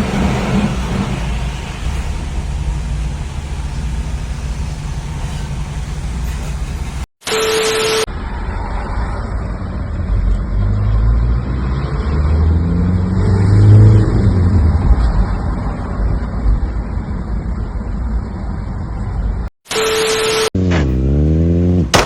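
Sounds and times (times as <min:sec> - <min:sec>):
vehicle engine revving: 0:00.0 - 0:07.1, 0:20.6 - 0:22.0.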